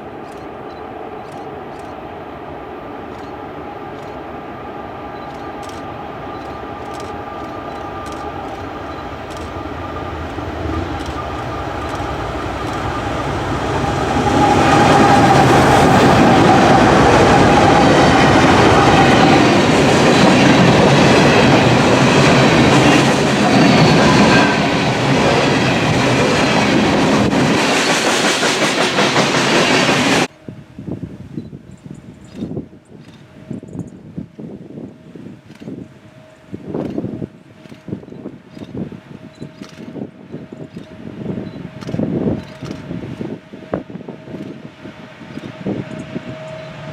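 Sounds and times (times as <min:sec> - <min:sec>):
train wheels clattering on rails: 0:05.2 - 0:30.3, 0:36.7 - 0:46.7.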